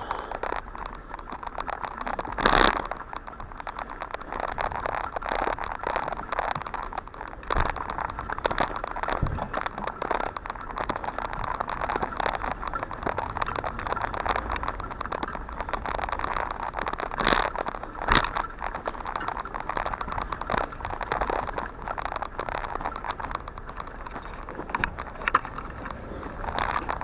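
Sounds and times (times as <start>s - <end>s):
bicycle being wheeled: 0.0s - 27.0s
footsteps crunching: 0.0s - 27.0s.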